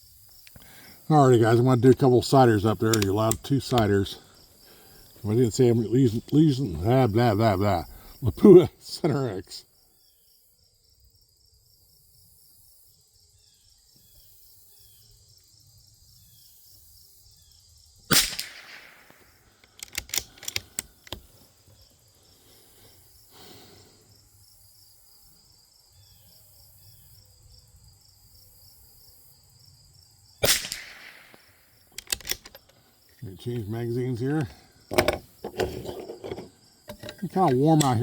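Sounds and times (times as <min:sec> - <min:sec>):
insects chirping: 0:00.0 - 0:38.0
rifle bolt clicks: 0:02.9 - 0:03.9, 0:18.1 - 0:21.3, 0:30.4 - 0:32.6, 0:34.9 - 0:38.0
rifle shot: 0:18.1 - 0:19.4, 0:30.4 - 0:31.7.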